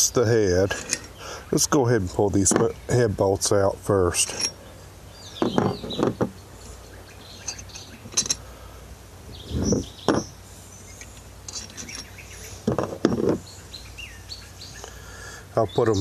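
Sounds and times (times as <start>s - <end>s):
birds chirping: 0.0s - 16.0s
metal bolts clinking: 0.7s - 1.2s, 4.2s - 4.6s, 7.4s - 8.4s, 11.5s - 13.4s.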